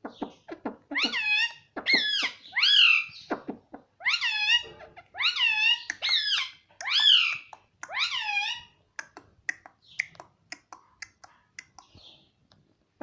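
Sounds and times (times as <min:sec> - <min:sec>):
parrot calls: 0:00.0 - 0:08.8.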